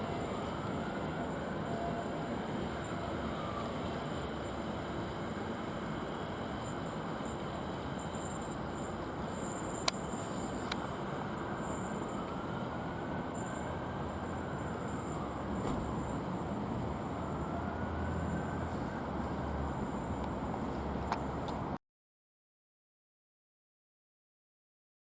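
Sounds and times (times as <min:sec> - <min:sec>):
faint wheel squeal: 0:06.5 - 0:21.4.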